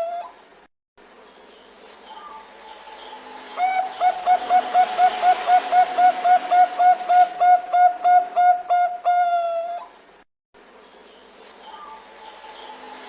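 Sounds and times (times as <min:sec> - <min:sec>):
dove cooing: 0:03.6 - 0:09.9.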